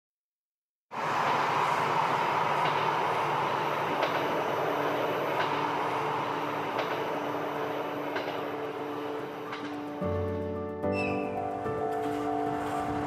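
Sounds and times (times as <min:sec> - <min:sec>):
train rumbling along track: 0:00.9 - 0:13.0
wheels clicking over rail joints: 0:02.5 - 0:13.0
music: 0:08.1 - 0:13.0.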